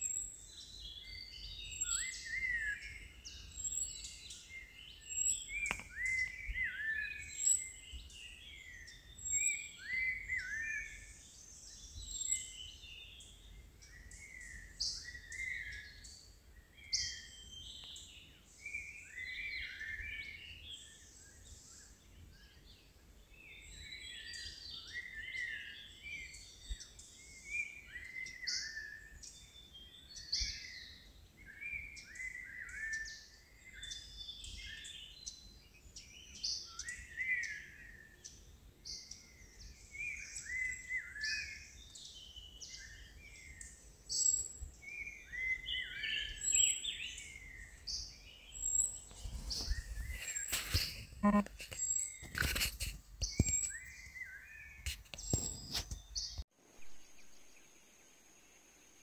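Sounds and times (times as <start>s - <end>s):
birds singing: 0.0s - 57.8s
thin high bird call: 48.7s - 53.9s.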